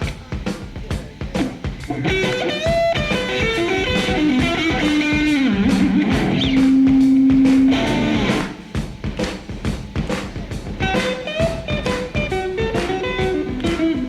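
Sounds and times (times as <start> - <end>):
hard rock band playing: 0.0 - 14.0
electric guitar solo: 1.8 - 8.6, 10.8 - 14.0.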